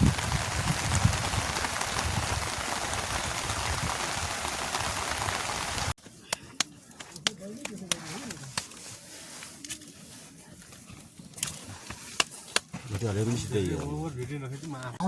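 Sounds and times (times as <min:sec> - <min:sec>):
heavy rain hissing: 0:00.0 - 0:06.0.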